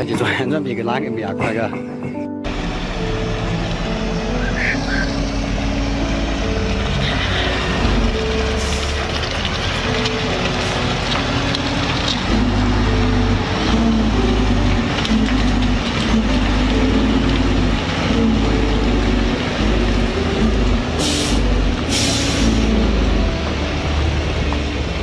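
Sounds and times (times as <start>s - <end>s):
heavy truck running: 1.8s - 25.0s
air brake hisses: 21.0s - 22.7s.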